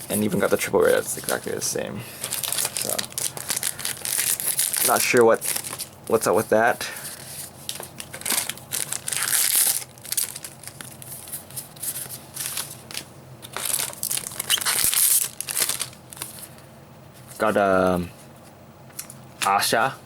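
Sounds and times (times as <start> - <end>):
foil wrappers tearing and crinkling: 0.1 - 1.6, 2.2 - 16.5.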